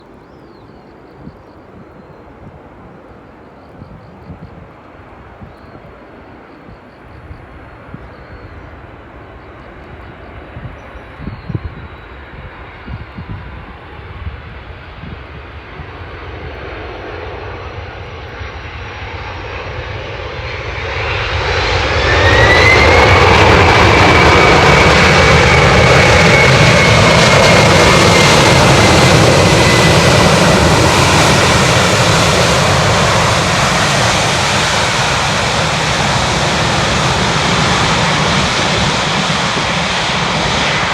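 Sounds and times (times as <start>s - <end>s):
jet engines landing: 0.0s - 40.9s
reverse thrust engine whine: 15.7s - 40.9s.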